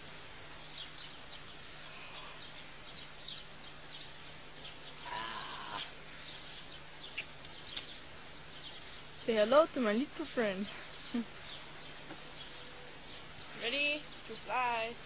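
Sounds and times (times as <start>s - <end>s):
faint steady hum: 0.0s - 15.0s
small birds chirping: 0.0s - 15.0s
pitched vocal call: 5.0s - 6.0s.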